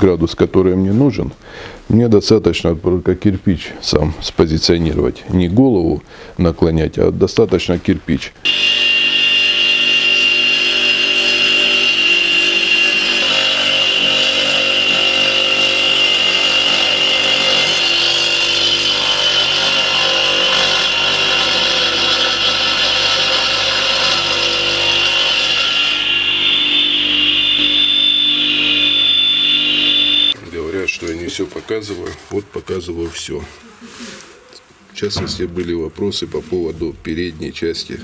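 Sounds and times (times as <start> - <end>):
electric saw cutting brick: 8.5 - 30.4.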